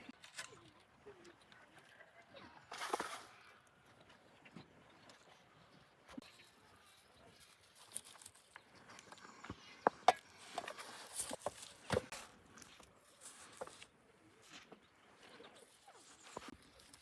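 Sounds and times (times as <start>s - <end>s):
faint rustling: 10.3s - 17.0s.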